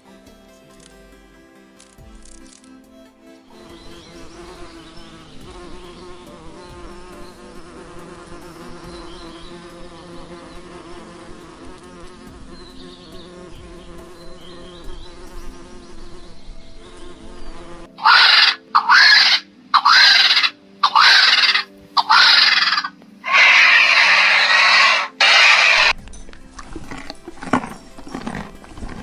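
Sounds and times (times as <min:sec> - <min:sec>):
insect buzzing: 0:01.8 - 0:02.8, 0:03.5 - 0:26.0
shrill animal calls: 0:18.0 - 0:26.0.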